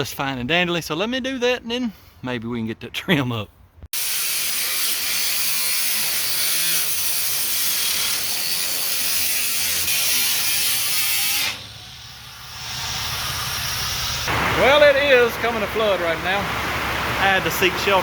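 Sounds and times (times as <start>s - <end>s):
power tool cutting metal: 4.0s - 14.3s
rain hiss: 12.6s - 18.0s.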